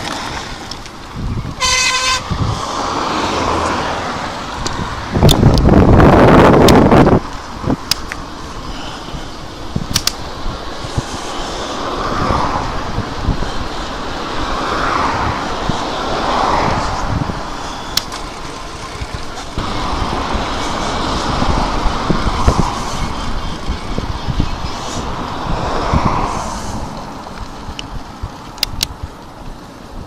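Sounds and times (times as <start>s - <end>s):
tyre and road rumble: 0.0s - 30.0s
wind rushing over microphone: 0.0s - 30.0s
sharp clicks: 7.8s - 8.2s, 9.9s - 10.2s, 28.5s - 29.0s.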